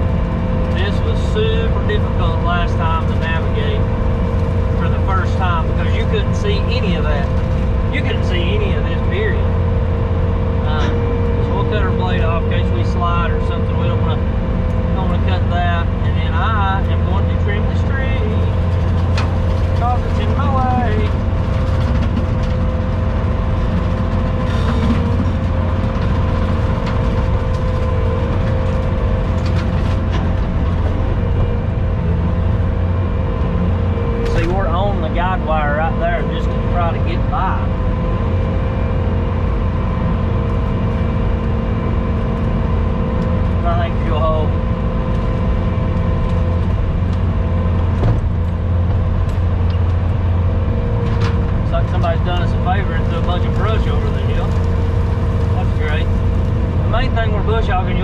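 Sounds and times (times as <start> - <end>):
skid steer engine running: 0.0 - 58.0
branches cracking: 53.1 - 56.9.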